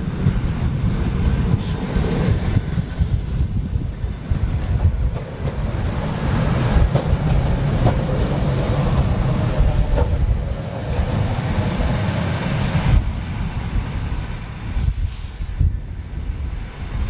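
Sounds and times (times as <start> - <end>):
electric train rumbling past: 0.0 - 17.0.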